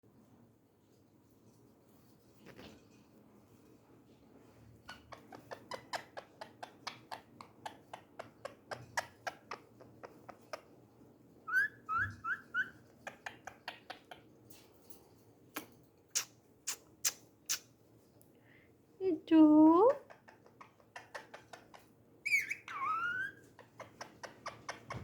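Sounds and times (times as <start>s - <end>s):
parrot clicking chirps: 15.6s - 17.7s.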